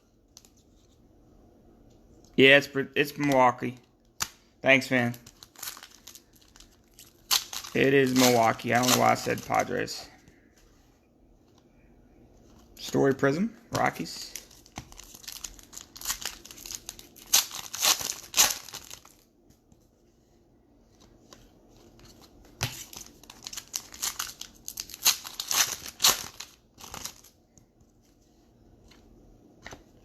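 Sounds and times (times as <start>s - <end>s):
plastic wrapper tearing and crinkling: 5.1s - 9.7s, 14.3s - 19.2s, 22.8s - 27.4s.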